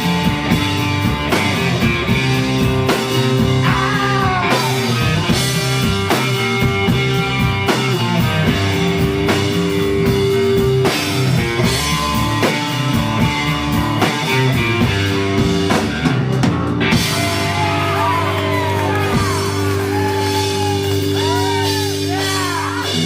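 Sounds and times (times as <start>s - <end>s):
bass guitar: 0.0s - 23.0s
drum kit: 0.0s - 23.0s
electric guitar: 0.0s - 23.0s.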